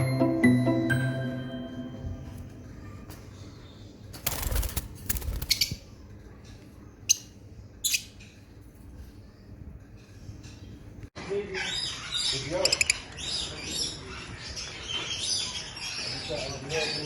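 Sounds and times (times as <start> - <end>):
birds flapping wings: 4.1 - 5.8.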